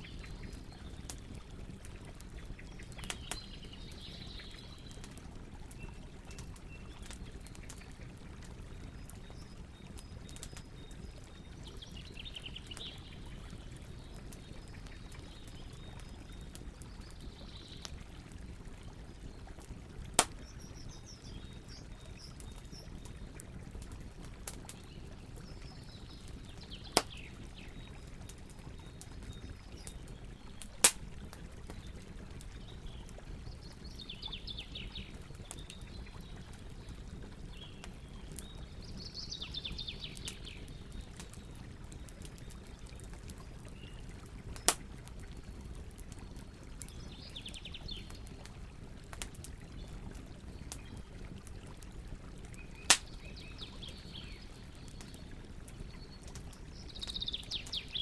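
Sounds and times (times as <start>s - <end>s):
campfire crackling: 0.0s - 58.0s
sharp fire pops: 20.2s - 20.5s, 27.0s - 27.2s, 30.8s - 31.1s, 44.6s - 44.9s, 52.9s - 53.2s
bird singing: 56.8s - 58.0s.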